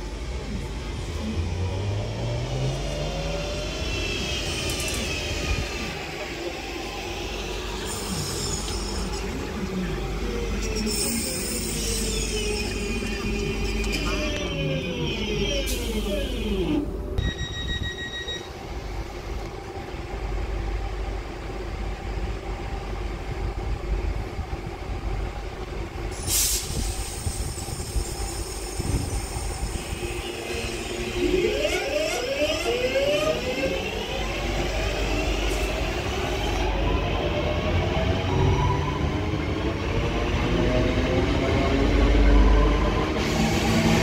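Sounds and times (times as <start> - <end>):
train wheels rumbling on rail: 0.0 - 17.2, 18.6 - 44.0.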